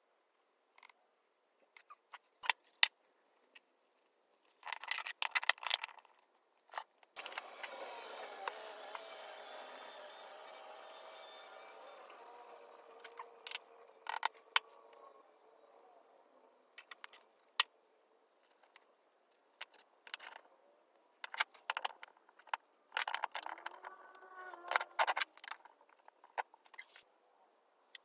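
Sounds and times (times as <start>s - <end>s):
hum: 7.2s - 17.1s.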